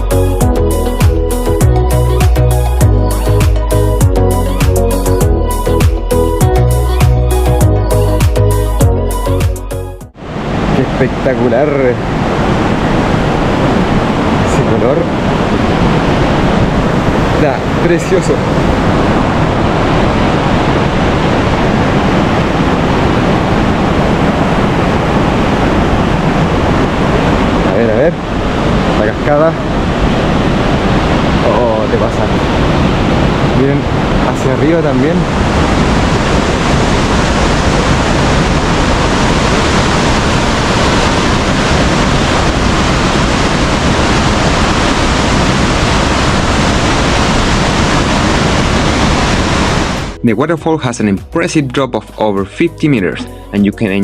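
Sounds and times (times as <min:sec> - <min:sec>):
waterfall rushing: 0:09.4 - 0:50.2.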